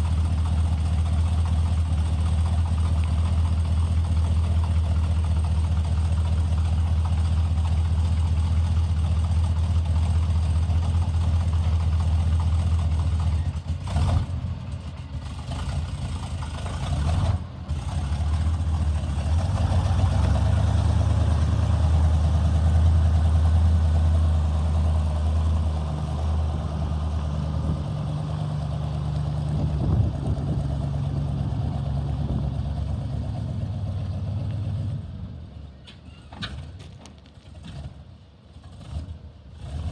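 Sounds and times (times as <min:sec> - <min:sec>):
truck engine running: 0:00.0 - 0:39.9.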